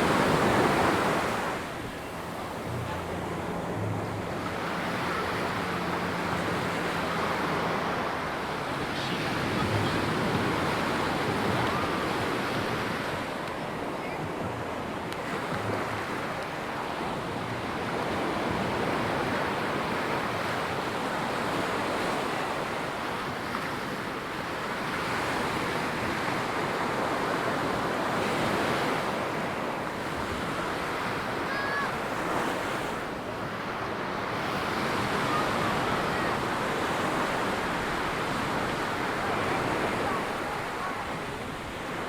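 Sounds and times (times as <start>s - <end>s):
waves breaking on beach: 0.0s - 42.0s.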